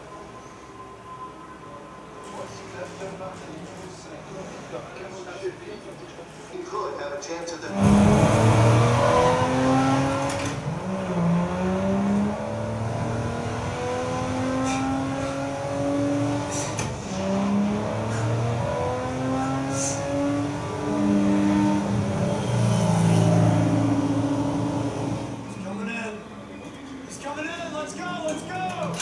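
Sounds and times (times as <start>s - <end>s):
racing car engines passing: 7.6s - 29.0s.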